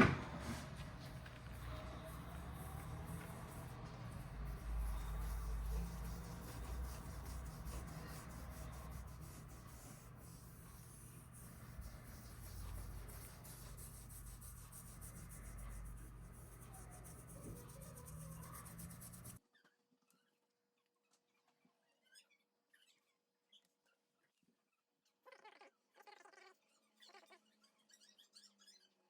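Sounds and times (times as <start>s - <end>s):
steady low hum: 0.1s - 19.4s
applicator rubbing on leather: 0.2s - 19.4s.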